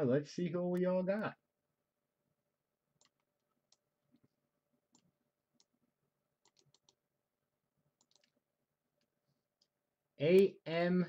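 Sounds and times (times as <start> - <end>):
computer mouse clicks: 3.0 - 4.3, 6.4 - 7.0, 8.0 - 8.4.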